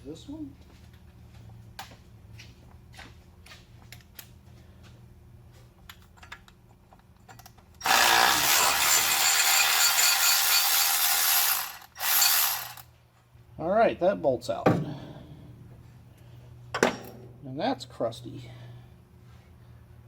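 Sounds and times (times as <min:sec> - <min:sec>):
cordless ratchet running: 0:07.8 - 0:12.9.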